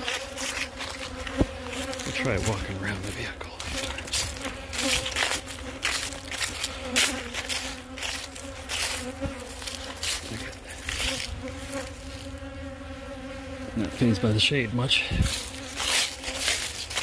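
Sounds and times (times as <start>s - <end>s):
bees buzzing: 0.0s - 17.0s
rustling: 15.2s - 17.0s.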